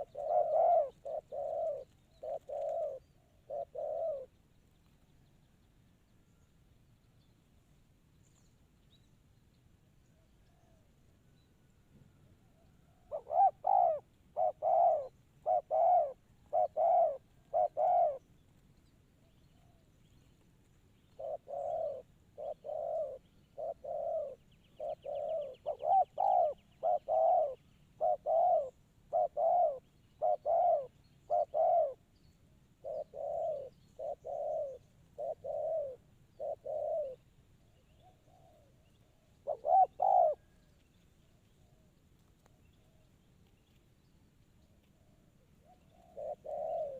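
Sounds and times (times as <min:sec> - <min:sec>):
dove cooing: 0:00.0 - 0:04.4, 0:12.4 - 0:18.4, 0:21.0 - 0:32.1, 0:32.8 - 0:40.6, 0:44.9 - 0:46.9.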